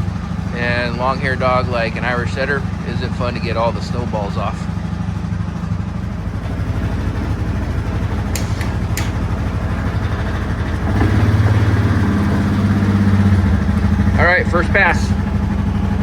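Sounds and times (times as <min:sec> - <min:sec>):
atv engine idling: 0:00.0 - 0:16.0
sharp clicks: 0:08.3 - 0:09.4.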